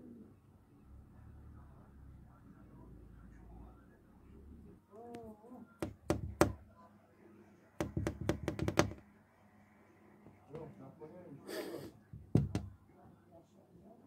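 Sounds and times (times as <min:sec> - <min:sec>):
sharp knocks: 0:05.8 - 0:06.6, 0:07.8 - 0:09.0, 0:12.2 - 0:12.7.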